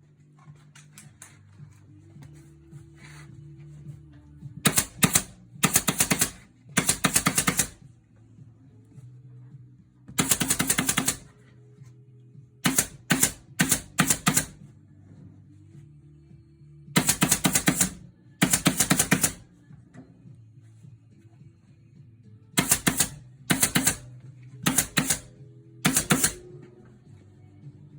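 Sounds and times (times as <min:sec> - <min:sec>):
staple gun firing clicks: 0:04.7 - 0:07.8, 0:12.7 - 0:14.5, 0:22.6 - 0:24.0, 0:24.7 - 0:25.3, 0:25.9 - 0:26.4.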